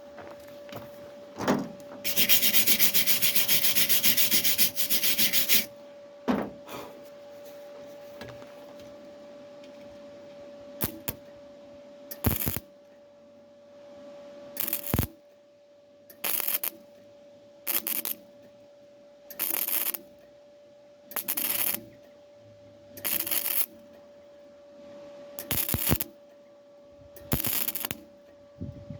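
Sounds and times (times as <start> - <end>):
faint steady hum: 0.0 - 28.9
hand sanding strokes: 2.0 - 5.7
knocks: 6.3 - 6.6.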